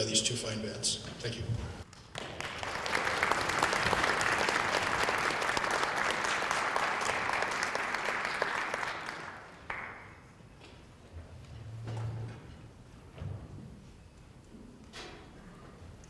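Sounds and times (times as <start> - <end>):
audience applauding: 1.9 - 10.3.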